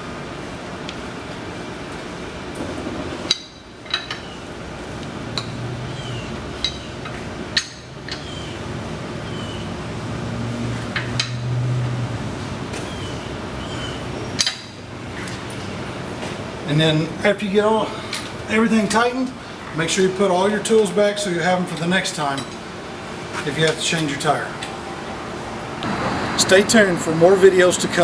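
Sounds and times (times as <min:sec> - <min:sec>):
lug wrench clicking: 0:06.6 - 0:08.4, 0:10.9 - 0:11.5.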